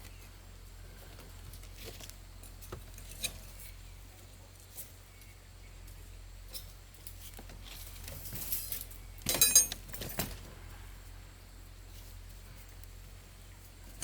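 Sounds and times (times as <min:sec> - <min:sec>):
ringing metallic jangles: 0:08.4 - 0:09.9
small metal pieces clinking: 0:08.5 - 0:10.1.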